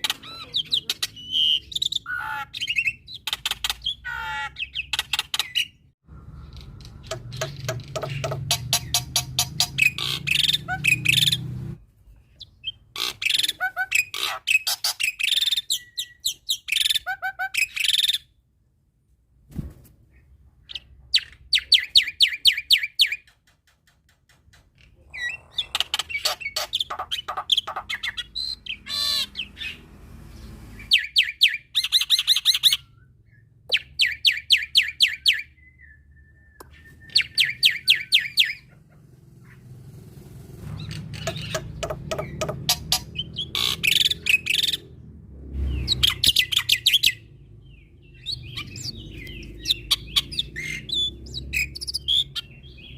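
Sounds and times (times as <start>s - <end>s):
starling singing: 0.0s - 5.8s, 6.4s - 11.6s, 36.6s - 39.8s, 40.7s - 52.9s.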